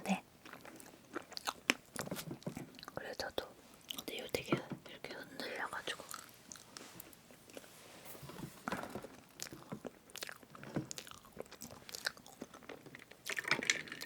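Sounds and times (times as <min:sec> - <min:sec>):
chewing soft cake: 0:00.4 - 0:03.2, 0:03.8 - 0:04.1, 0:06.1 - 0:07.7, 0:09.4 - 0:13.5.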